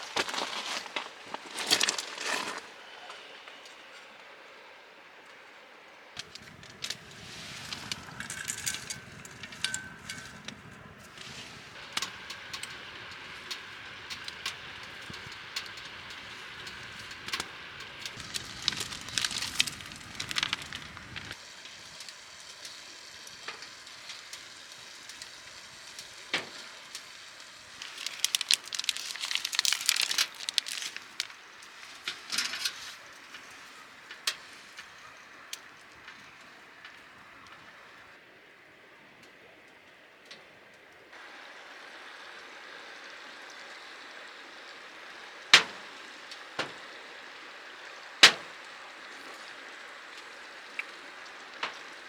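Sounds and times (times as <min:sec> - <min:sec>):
wood fire crackling: 0:00.0 - 0:38.6, 0:39.2 - 0:52.0
low rumble: 0:06.3 - 0:21.4.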